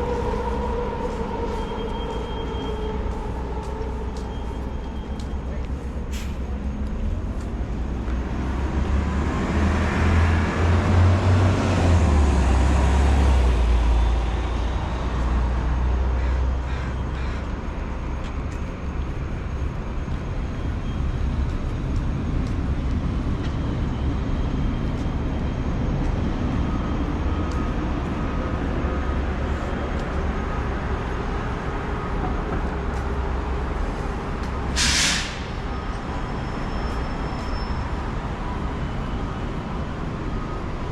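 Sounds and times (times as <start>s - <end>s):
heavy vehicle passing: 0.0s - 18.2s
traffic noise: 0.0s - 40.9s
short sharp hiss: 34.8s - 35.5s.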